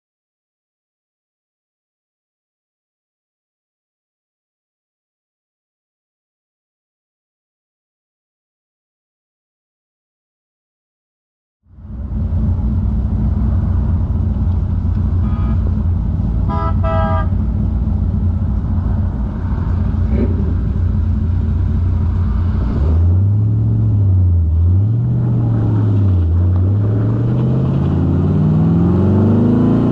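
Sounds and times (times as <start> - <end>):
car engine exhaust rumble: 11.7 - 29.9
car horn toots: 15.1 - 17.6.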